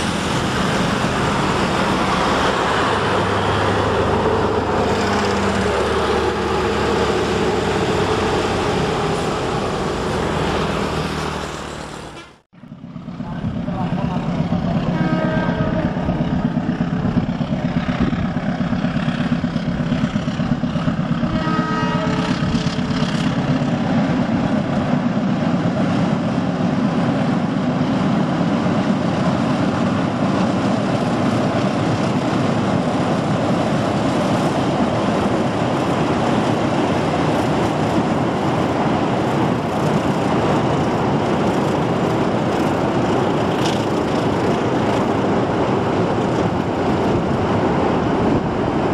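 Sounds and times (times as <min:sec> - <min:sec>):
train wheels rumbling on bridge: 0:00.0 - 0:48.9
locomotive horn blast: 0:14.8 - 0:16.1, 0:21.3 - 0:22.4.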